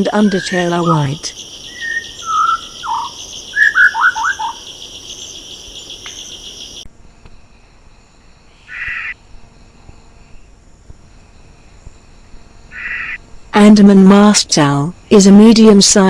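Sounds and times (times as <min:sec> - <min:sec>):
bird whistling falling notes: 0:00.0 - 0:06.8
insect chorus pulsing: 0:00.0 - 0:06.8
short bird call: 0:00.2 - 0:06.8.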